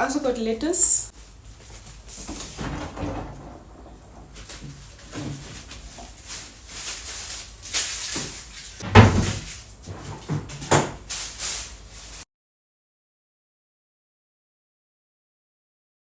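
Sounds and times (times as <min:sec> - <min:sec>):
groceries knocking and rustling: 0:01.1 - 0:12.2.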